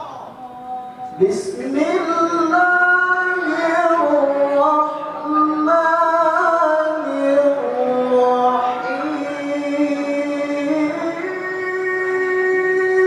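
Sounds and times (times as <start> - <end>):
person reciting melodically: 0.0 - 13.0.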